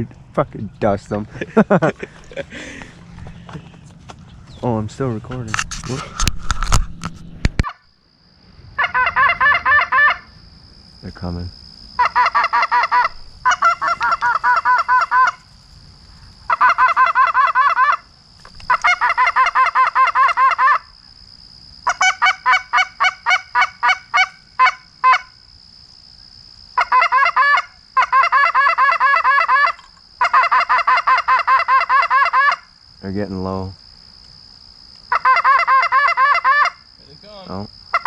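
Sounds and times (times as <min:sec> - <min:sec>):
goose call honks and clucks: 0:08.8 - 0:10.3, 0:12.0 - 0:15.5, 0:16.5 - 0:18.1, 0:18.7 - 0:20.9, 0:21.8 - 0:25.3, 0:26.8 - 0:32.7, 0:35.1 - 0:36.8.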